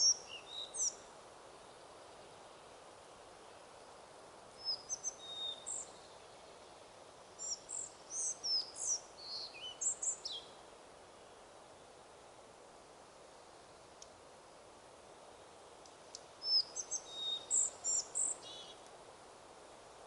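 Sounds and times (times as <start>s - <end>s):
songbird chirping and whistling: 0.0s - 1.0s, 4.6s - 5.9s, 7.4s - 10.5s, 16.4s - 18.8s
wind rushing in forest: 0.0s - 20.0s.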